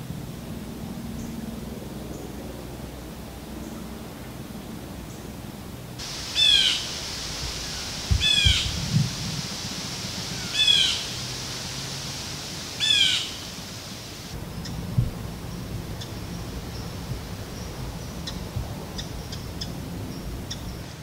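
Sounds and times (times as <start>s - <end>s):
steady hiss: 5.9s - 21.0s
bird calls sliding down in pitch: 6.1s - 14.3s
low thumps: 7.0s - 10.2s.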